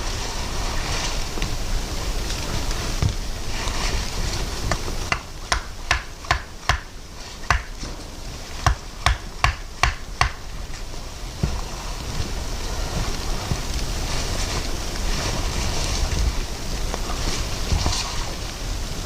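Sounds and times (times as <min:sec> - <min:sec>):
steady rushing noise: 0:00.0 - 0:19.0
sharp knocks: 0:05.1 - 0:08.0, 0:08.6 - 0:10.5.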